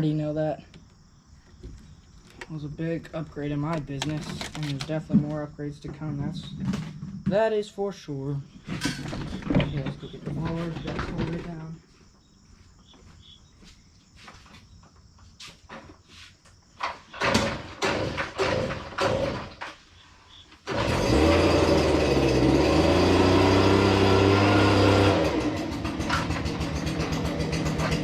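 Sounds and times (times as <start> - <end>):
sharp clicks and knocks: 3.6 - 7.4
mower engine running: 17.2 - 19.6, 20.6 - 28.0.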